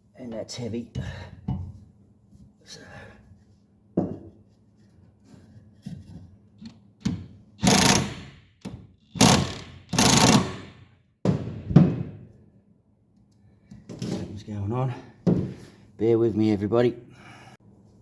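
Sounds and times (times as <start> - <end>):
impact wrench hammering: 7.1 - 12.1.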